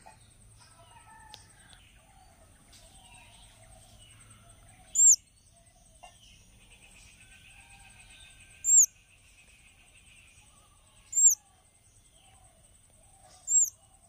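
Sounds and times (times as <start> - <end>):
distant birdsong: 0.0 - 14.0
nestling bird chirp: 4.7 - 5.2, 8.3 - 9.0, 11.0 - 11.5, 13.2 - 13.8.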